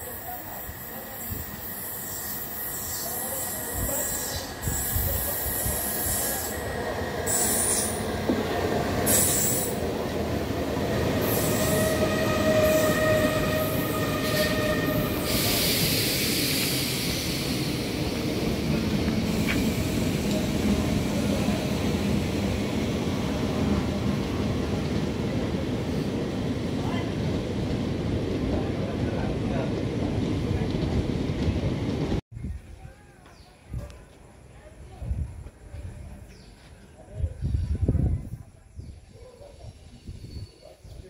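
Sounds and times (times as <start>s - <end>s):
wheels squealing on rails: 0.0s - 10.0s, 10.9s - 22.0s, 39.5s - 41.0s
train rumbling past: 0.0s - 32.2s.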